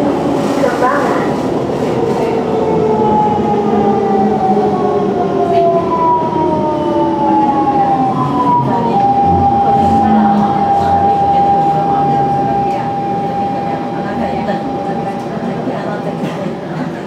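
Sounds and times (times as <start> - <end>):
train running noise: 0.0 - 17.0
train motors whining: 7.0 - 17.0.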